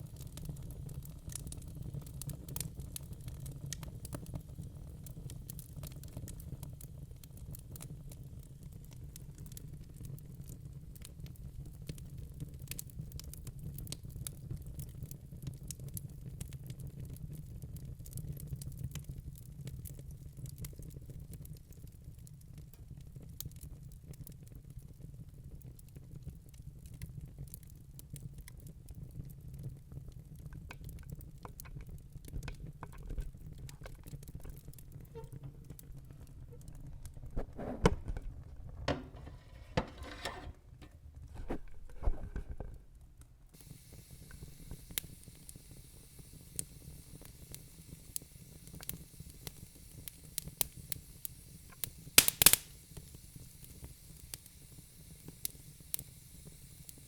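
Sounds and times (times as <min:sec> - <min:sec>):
low rumble of flame: 0:00.0 - 0:57.0
wood fire crackling and popping: 0:00.0 - 0:57.0
steady high hiss: 0:43.6 - 0:57.0.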